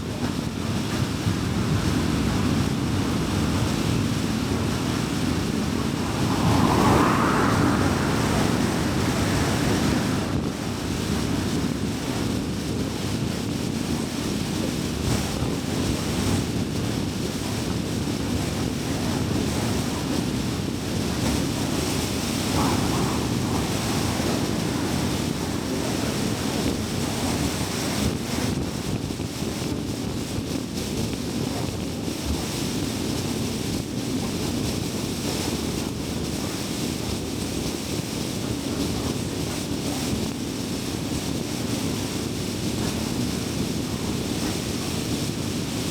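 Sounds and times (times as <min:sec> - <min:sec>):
car tyre and road noise: 0:01.1 - 0:29.5.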